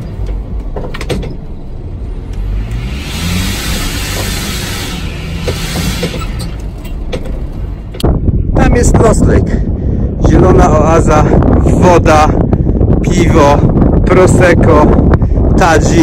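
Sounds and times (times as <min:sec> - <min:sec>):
rush of noise: 0:01.0 - 0:16.0
car engine revving: 0:01.5 - 0:08.0.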